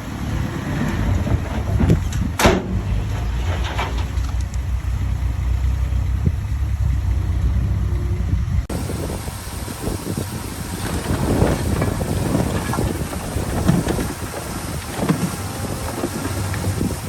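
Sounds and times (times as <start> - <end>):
machinery clanks and rattles: 0.0 - 7.6, 8.4 - 17.0
diesel engine running: 0.0 - 17.0
wind buffeting microphone: 0.7 - 4.7, 8.1 - 17.0.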